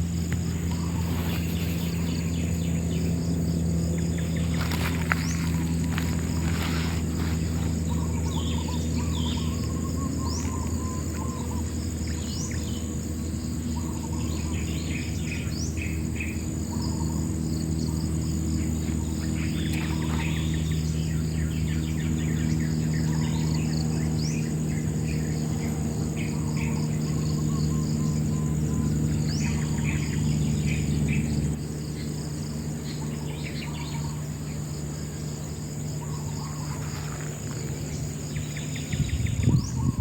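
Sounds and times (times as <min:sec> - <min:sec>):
birds chirping: 0:00.0 - 0:40.0
insects trilling: 0:00.0 - 0:40.0
low hum: 0:00.0 - 0:40.0
upward-sweeping calls: 0:00.4 - 0:03.2.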